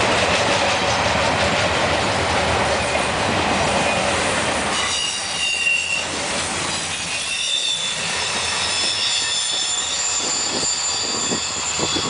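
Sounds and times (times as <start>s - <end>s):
steel wheels rumbling on rail: 0.0s - 12.0s
train wheels squealing: 3.8s - 12.0s.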